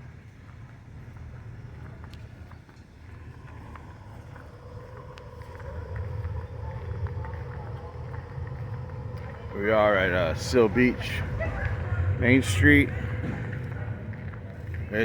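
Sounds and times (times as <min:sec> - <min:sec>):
faint steady hum: 0:00.0 - 0:15.0
car engine running: 0:03.0 - 0:15.0.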